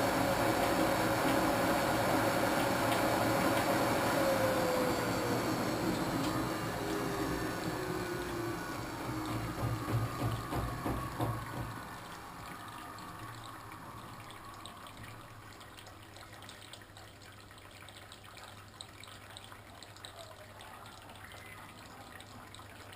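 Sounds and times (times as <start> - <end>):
washing machine humming: 0.0 - 17.2
water trickling and dripping: 0.0 - 22.9.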